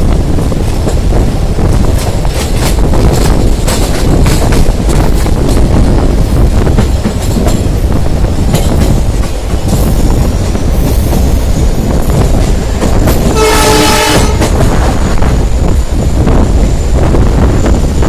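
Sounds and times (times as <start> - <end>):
train wheels rumbling on rail: 0.0 - 18.0
wind noise: 0.0 - 18.0
rail-joint clicks: 0.4 - 17.0
locomotive horn: 13.3 - 14.6.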